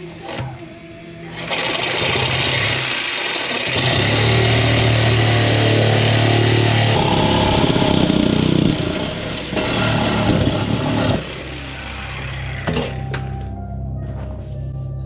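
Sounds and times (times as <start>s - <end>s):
engine revving: 3.7s - 12.7s.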